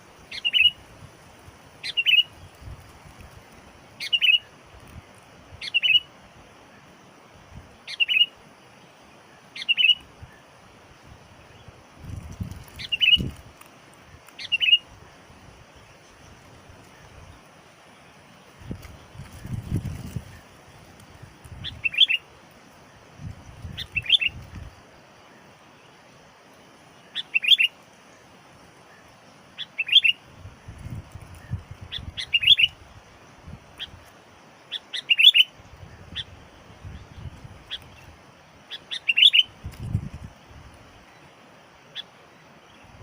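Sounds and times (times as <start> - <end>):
bird chirping: 0.3 - 0.8, 1.8 - 2.5, 4.0 - 4.5, 5.6 - 6.1, 7.8 - 10.5, 12.4 - 13.4, 14.3 - 14.8, 15.8 - 22.3, 23.5 - 26.0, 27.0 - 27.8, 28.9 - 30.2, 31.3 - 32.8, 34.7 - 38.1, 38.7 - 39.5.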